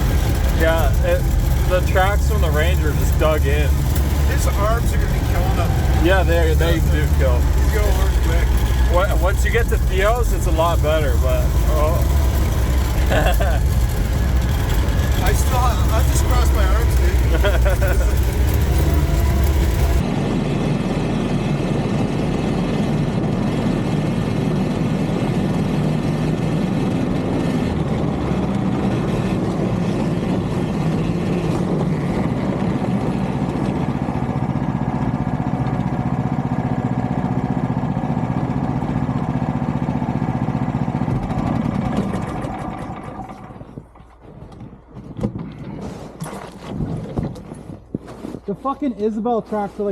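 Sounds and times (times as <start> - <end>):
utility vehicle engine droning: 0.0 - 47.9.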